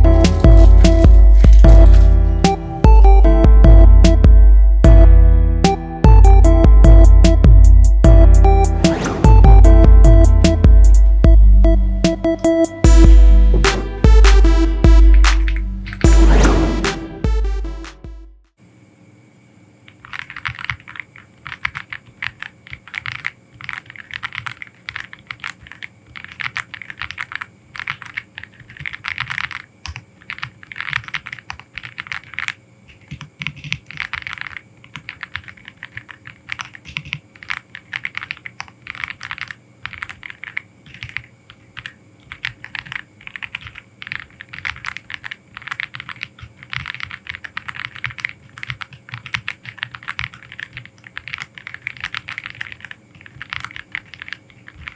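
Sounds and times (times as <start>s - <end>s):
mechanical keyboard typing: 0.0s - 2.7s, 13.6s - 16.2s, 19.9s - 54.9s.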